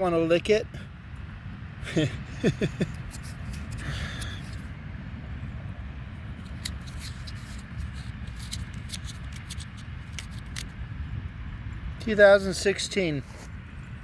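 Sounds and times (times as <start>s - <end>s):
fingers scraping metal tag: 6.4s - 10.7s.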